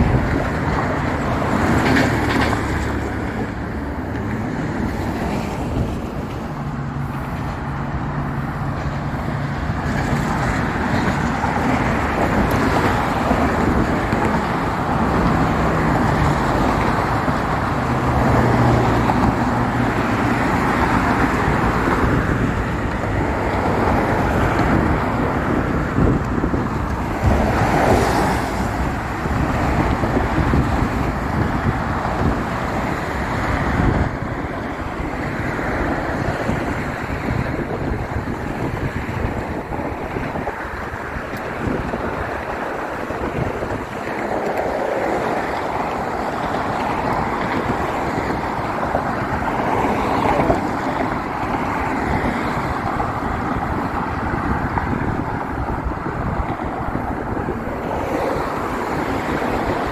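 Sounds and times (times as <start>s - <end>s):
road traffic passing: 0.0s - 59.9s
wind buffeting microphone: 0.0s - 59.9s.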